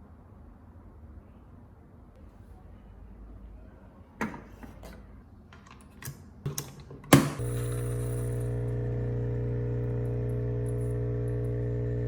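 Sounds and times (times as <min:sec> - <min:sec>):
coffee machine pump buzzing: 0:07.4 - 0:12.0.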